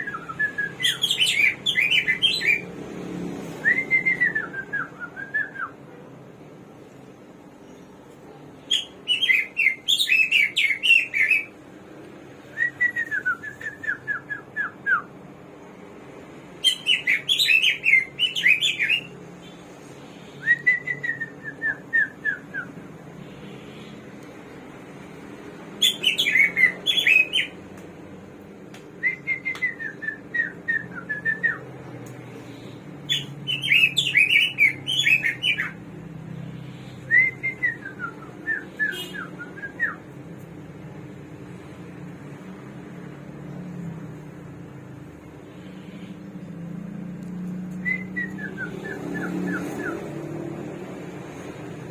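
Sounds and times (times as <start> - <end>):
songbird singing whistled notes: 0.0 - 2.7, 8.7 - 11.5, 16.6 - 19.6, 20.3 - 22.8, 25.8 - 27.6, 29.0 - 31.8, 32.5 - 35.8, 47.8 - 50.2.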